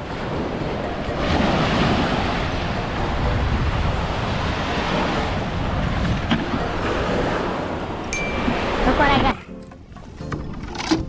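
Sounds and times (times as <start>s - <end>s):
wind rumbling on microphone: 0.0s - 8.1s.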